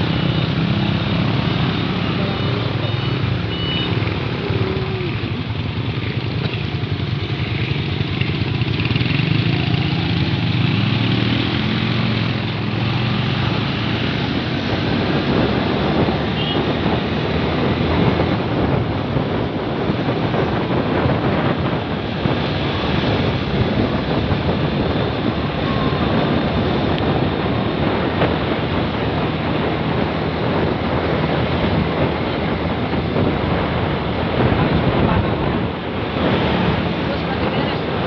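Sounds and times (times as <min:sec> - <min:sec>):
vehicle rushing on road: 0:00.0 - 0:38.0
wind buffeting microphone: 0:11.5 - 0:38.0.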